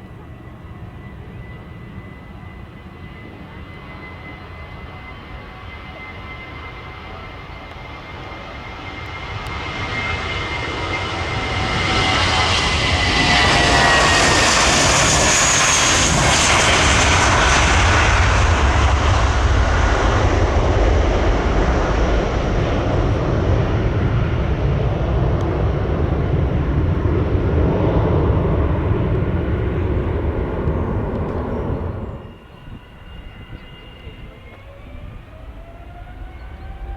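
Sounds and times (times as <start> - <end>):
jet engines roaring: 0.0 - 36.9
engine whine falling in pitch: 28.3 - 36.9.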